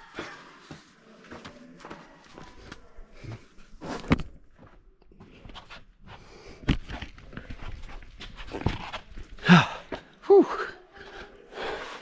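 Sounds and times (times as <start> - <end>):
person grunting: 9.4 - 10.6.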